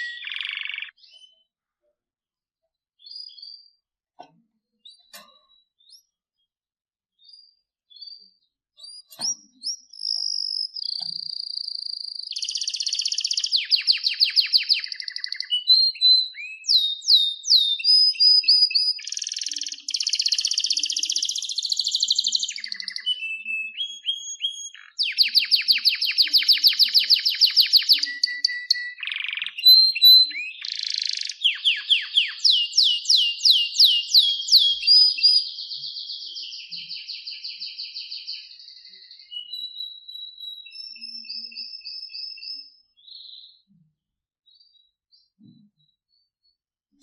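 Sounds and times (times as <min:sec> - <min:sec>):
canary singing trills: 0:00.0 - 0:01.5, 0:07.2 - 0:43.9.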